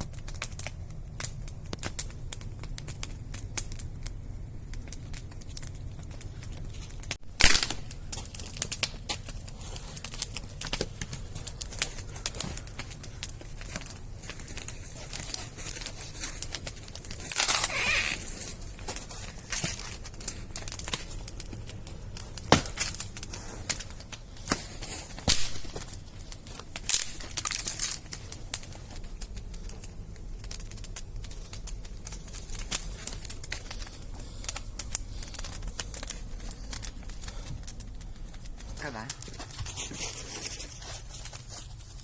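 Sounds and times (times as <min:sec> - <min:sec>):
wood fire crackling: 0:00.0 - 0:42.0
sharp pops: 0:07.4 - 0:14.0, 0:15.1 - 0:29.8.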